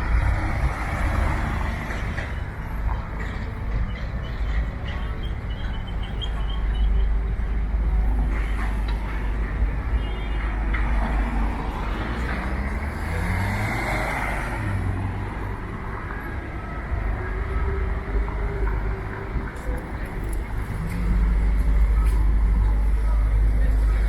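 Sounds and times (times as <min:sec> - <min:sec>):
city street traffic: 0:00.0 - 0:24.0
vehicle accelerating past: 0:12.1 - 0:15.1.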